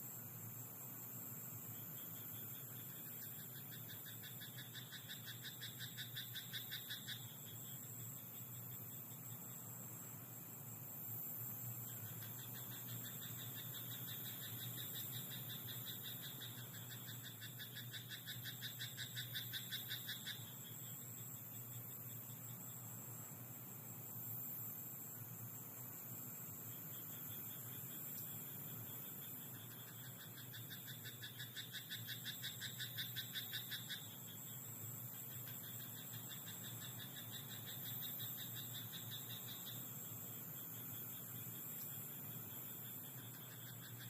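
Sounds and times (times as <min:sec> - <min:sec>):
faint high-pitched hiss: 0:00.0 - 0:44.0
frogs croaking: 0:00.0 - 0:44.0.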